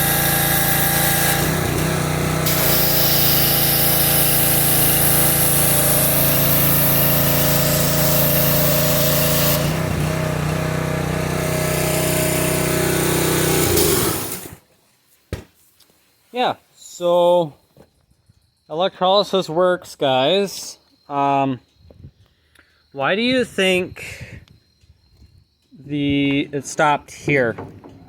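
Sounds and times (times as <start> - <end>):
hiss: 0.0 - 1.6, 2.4 - 9.8, 11.9 - 14.6
motor-driven machine running: 0.0 - 14.6.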